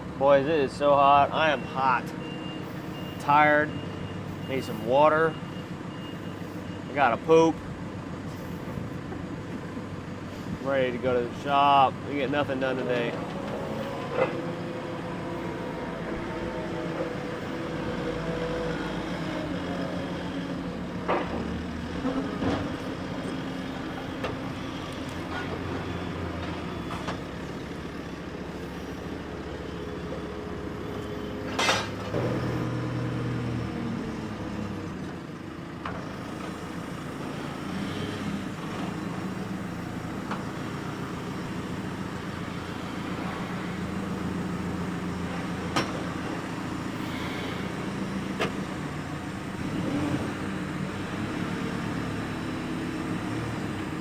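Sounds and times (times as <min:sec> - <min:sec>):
heavy engine running: 0:00.0 - 0:54.0.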